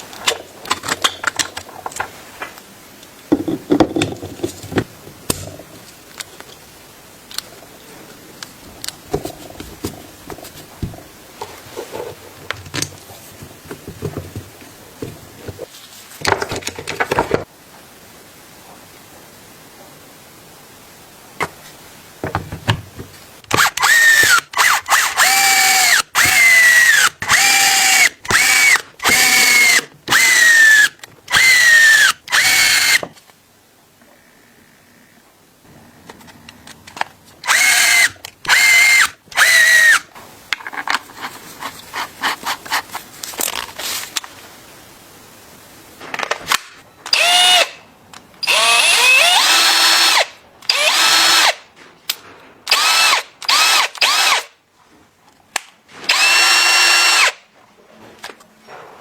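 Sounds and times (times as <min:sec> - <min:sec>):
electric drill motor whine: 0:23.6 - 0:33.0, 0:37.5 - 0:40.0, 0:47.1 - 0:47.7, 0:48.4 - 0:51.6, 0:52.7 - 0:54.4, 0:56.1 - 0:57.4.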